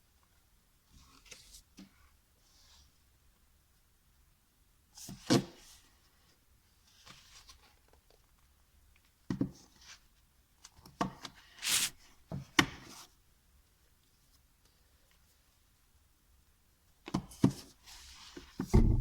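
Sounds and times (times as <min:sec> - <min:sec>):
hard objects knocking down: 0:18.8 - 0:19.0.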